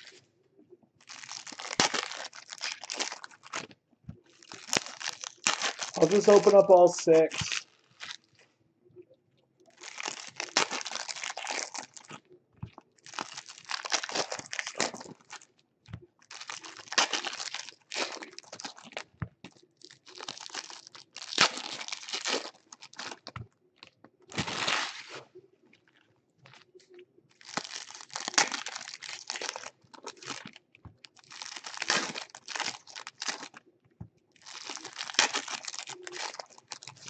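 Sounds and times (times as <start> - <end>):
plastic wrap crinkling and tearing: 0.0 - 0.2, 1.0 - 8.4, 9.7 - 15.6, 16.2 - 25.2, 27.3 - 33.6, 34.4 - 37.0.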